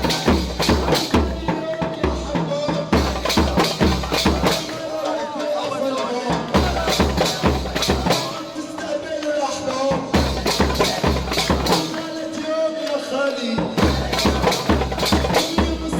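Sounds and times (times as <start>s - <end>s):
heavy drum beat: 0.0s - 9.1s, 9.8s - 12.4s, 13.6s - 15.9s
upbeat party music: 0.0s - 15.9s.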